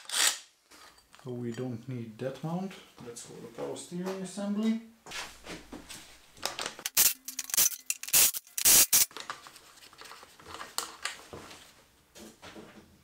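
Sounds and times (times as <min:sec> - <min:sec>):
loud hissing bursts: 0:06.9 - 0:09.1
tools clinking and rubbing on metal: 0:06.9 - 0:09.1.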